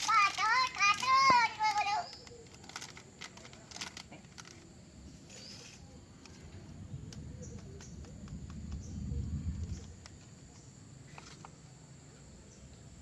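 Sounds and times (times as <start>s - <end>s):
small clicks: 0.0s - 4.7s
high insect drone: 0.0s - 13.0s
low rumble: 6.6s - 10.1s.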